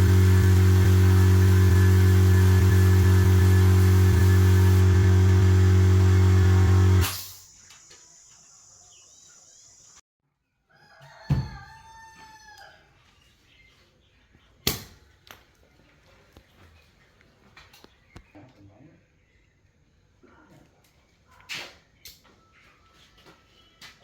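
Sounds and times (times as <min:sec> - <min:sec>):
steady low hum: 0:00.0 - 0:07.1
rooster crowing: 0:10.7 - 0:12.9.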